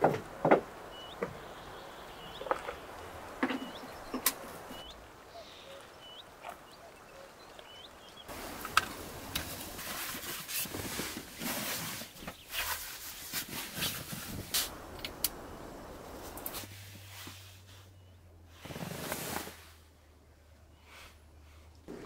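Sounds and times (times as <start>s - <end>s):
bird chirping: 0.8s - 8.3s.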